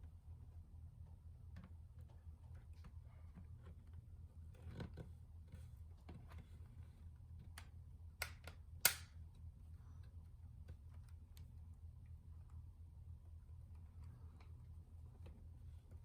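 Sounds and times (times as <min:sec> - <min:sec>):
steady low hum: 0:00.0 - 0:16.0
sharp small clicks and taps: 0:07.5 - 0:09.2.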